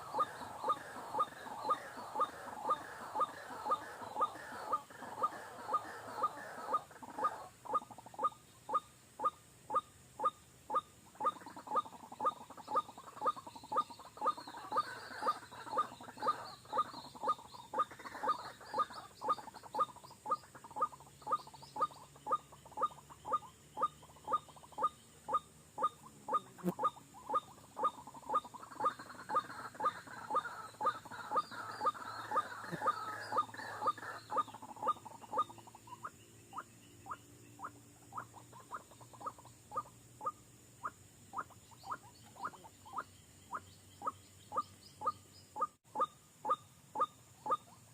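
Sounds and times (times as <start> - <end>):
bird chattering calls: 0.0 - 47.9
bird short sharp calls: 11.2 - 47.9.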